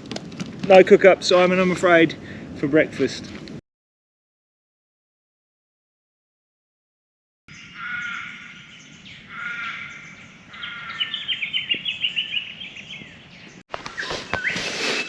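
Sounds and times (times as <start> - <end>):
high bird chirping: 7.5 - 14.6
drawn-out bird calls: 7.5 - 14.7.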